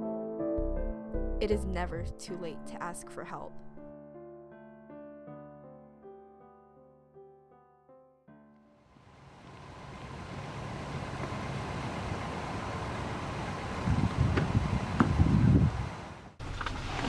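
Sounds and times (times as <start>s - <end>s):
low thumps: 0.6s - 1.4s
car engine running: 9.0s - 15.3s.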